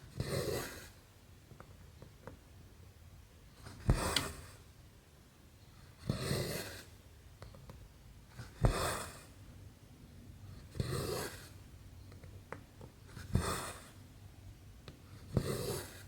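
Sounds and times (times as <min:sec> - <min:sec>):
small clicks and taps: 0:12.1 - 0:13.0.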